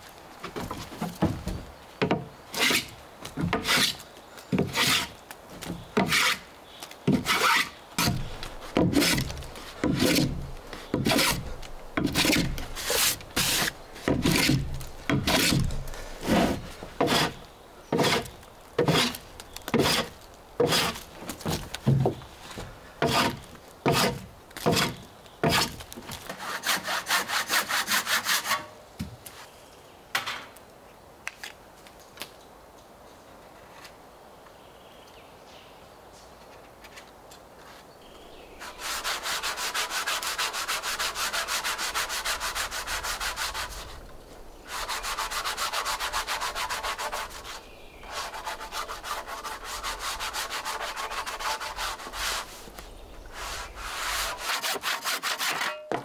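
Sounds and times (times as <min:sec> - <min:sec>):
rapid scraping strokes: 0:07.1 - 0:21.0, 0:38.6 - 0:44.1, 0:44.7 - 0:55.8.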